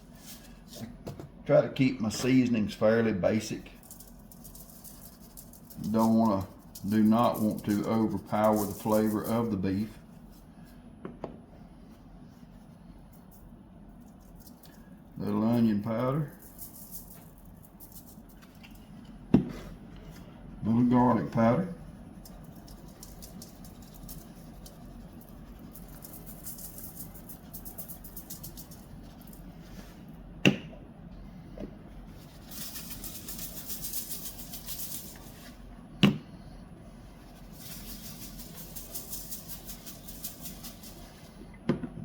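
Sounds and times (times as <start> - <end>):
spice shaker rattling: 3.8 - 9.9, 13.1 - 15.2, 16.2 - 19.1, 21.8 - 29.9, 32.1 - 35.6, 37.1 - 41.4.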